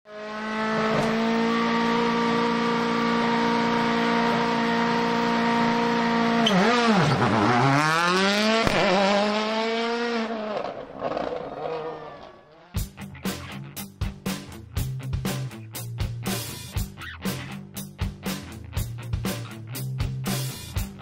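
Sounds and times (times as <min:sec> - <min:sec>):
racing car engine revving: 0:00.1 - 0:12.9.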